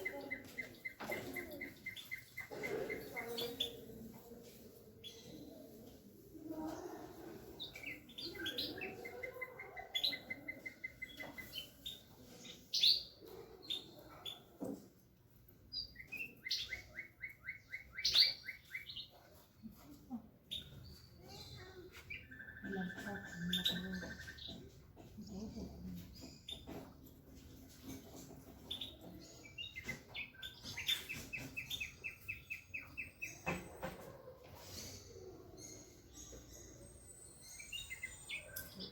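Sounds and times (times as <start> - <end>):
bird chirping: 0.0 - 6.0, 6.9 - 14.8, 15.4 - 38.9
bulbul singing: 7.4 - 14.6, 15.7 - 19.2, 20.5 - 27.0, 28.6 - 33.8, 35.6 - 38.9.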